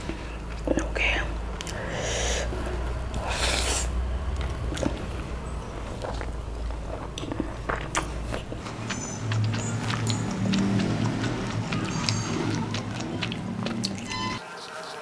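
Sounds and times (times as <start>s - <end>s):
person chewing food: 1.6s - 14.8s
wet mouth clicks: 7.2s - 14.1s.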